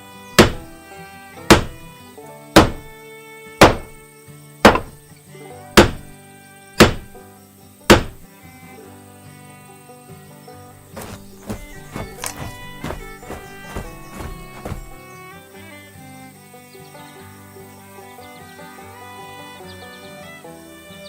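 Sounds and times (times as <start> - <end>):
heavy thunks: 0.4 - 0.7, 1.5 - 1.9, 2.6 - 3.0, 3.6 - 4.0, 4.7 - 5.0, 5.8 - 6.1, 6.8 - 7.2, 7.9 - 8.3, 10.9 - 15.0.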